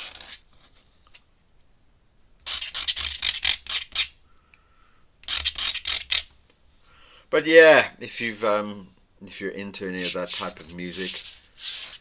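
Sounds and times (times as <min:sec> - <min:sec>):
pen scratching on paper: 0:09.8 - 0:12.0.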